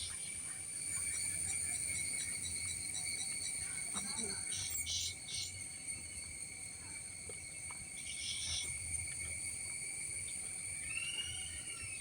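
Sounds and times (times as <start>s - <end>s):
insects droning: 0.0s - 12.0s
rising and falling whistle: 10.8s - 12.0s.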